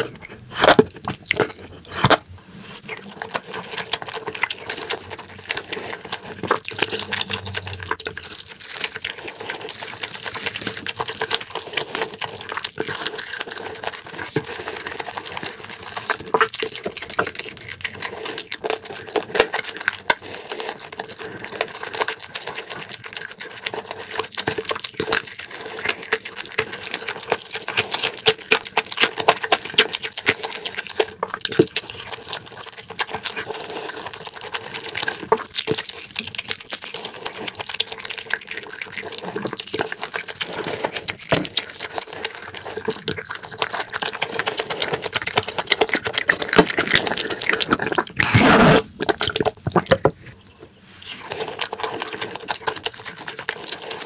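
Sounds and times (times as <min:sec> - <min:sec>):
chewing food: 0:00.0 - 0:54.0
wet mouth smacking: 0:45.9 - 0:50.1
quick mouth clicks: 0:48.1 - 0:48.9.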